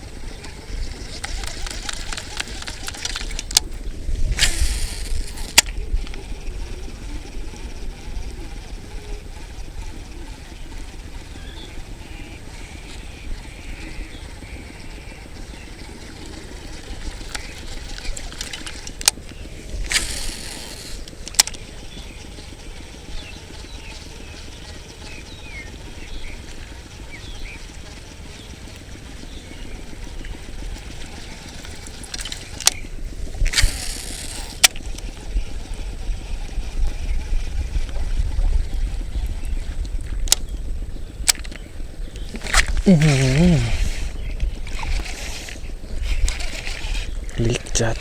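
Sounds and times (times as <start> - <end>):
wind buffeting microphone: 0.0 - 48.0
short hiss: 4.3 - 5.6, 19.9 - 21.0
microphone handling clicks: 41.2 - 48.0.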